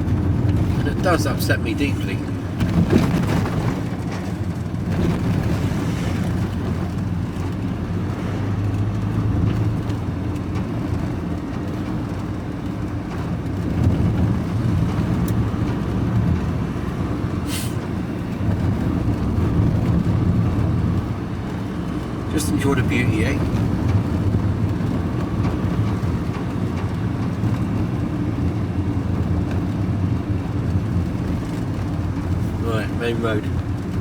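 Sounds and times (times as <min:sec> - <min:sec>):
lorry engine running: 0:00.0 - 0:34.0
brief air hiss: 0:17.5 - 0:17.8.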